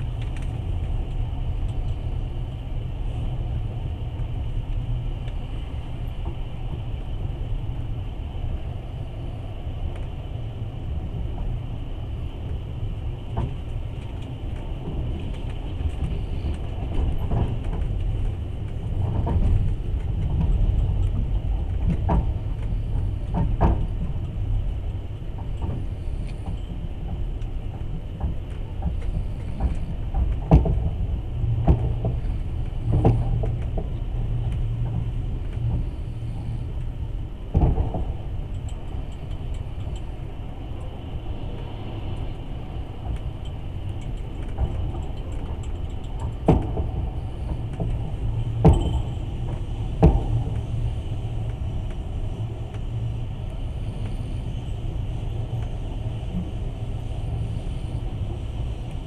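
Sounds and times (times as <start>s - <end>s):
train rumbling on rails: 0.0s - 59.0s
sharp knocks of train wheels: 25.4s - 36.6s, 44.1s - 52.0s.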